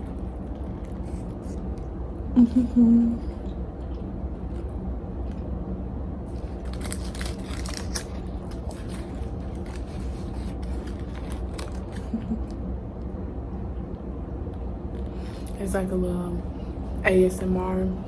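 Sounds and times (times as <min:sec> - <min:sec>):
low background rumble: 0:00.0 - 0:18.0
biting and chewing food: 0:06.2 - 0:12.6.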